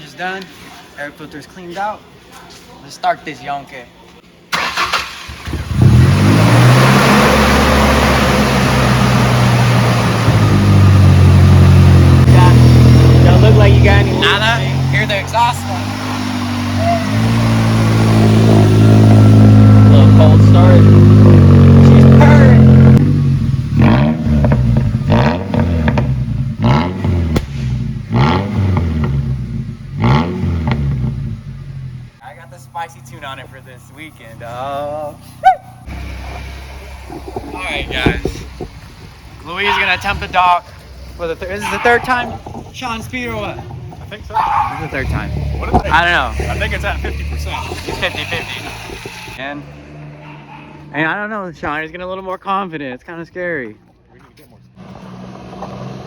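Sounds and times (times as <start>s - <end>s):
engine starter cranking: 4.5s - 6.0s
engine throttle blips: 4.5s - 34.4s, 35.2s - 51.8s
car engine idling: 6.9s - 52.0s.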